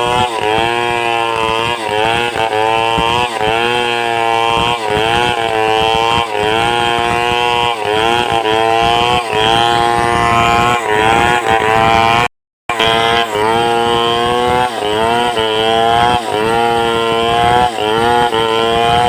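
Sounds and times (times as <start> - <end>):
chainsaw cutting log: 0.0 - 19.0.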